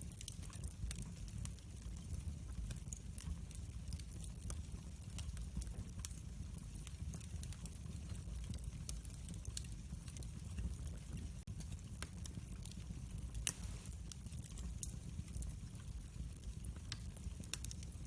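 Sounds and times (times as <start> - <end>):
low rumble of burning: 0.0 - 18.0
wood fire crackling: 0.0 - 18.0.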